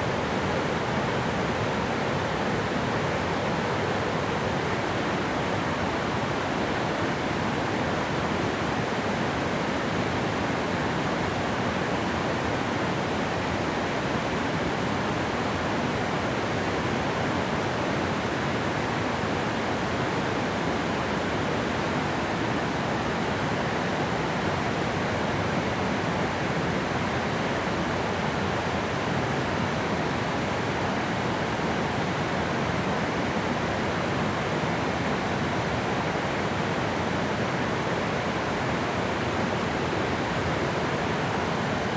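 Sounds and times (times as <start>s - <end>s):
water rushing at a dam: 0.0s - 41.9s.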